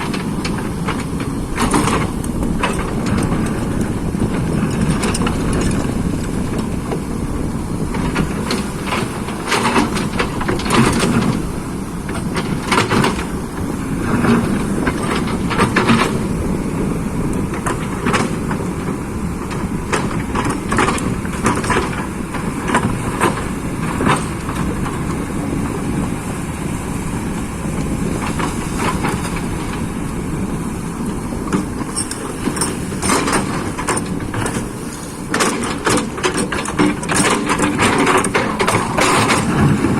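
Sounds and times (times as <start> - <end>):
excavator diesel engine running: 0.0 - 39.9
metallic clanks and knocks: 31.5 - 39.9.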